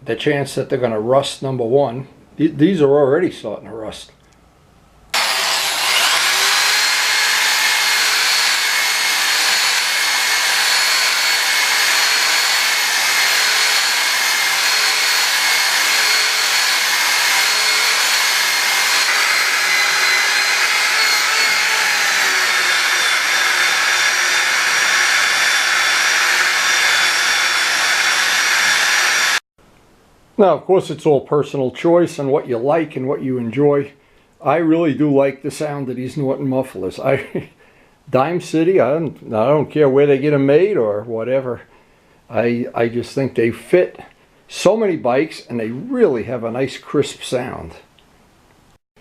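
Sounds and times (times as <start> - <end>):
electric power buffer whining: 5.2 - 29.4.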